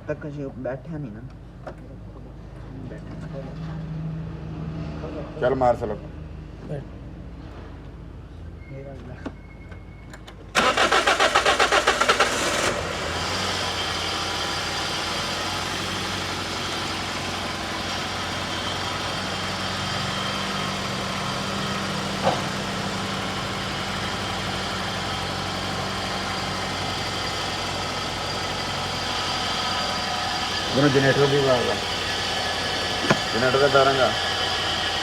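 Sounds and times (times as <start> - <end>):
car engine idling: 10.5 - 35.0
starter motor cranking: 10.6 - 13.0, 30.4 - 35.0.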